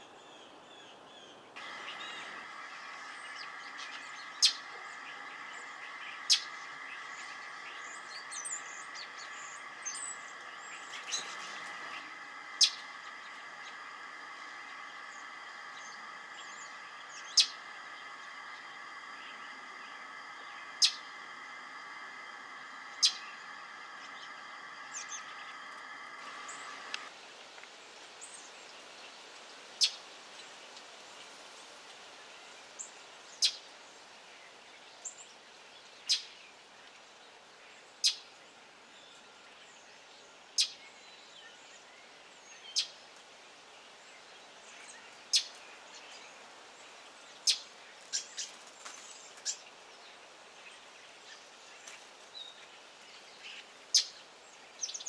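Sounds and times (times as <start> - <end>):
bird alarm calls: 1.6 - 27.1
steady hum: 1.6 - 27.2.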